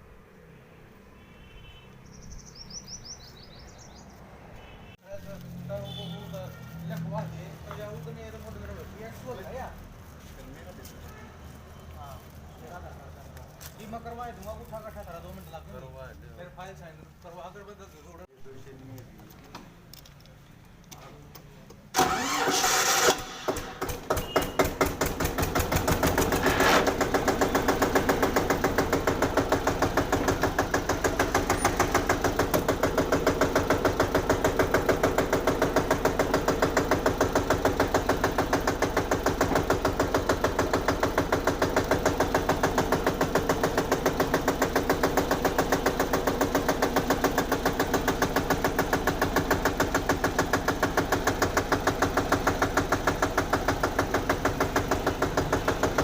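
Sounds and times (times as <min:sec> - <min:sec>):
tractor diesel engine starting: 0:21.9 - 0:56.0.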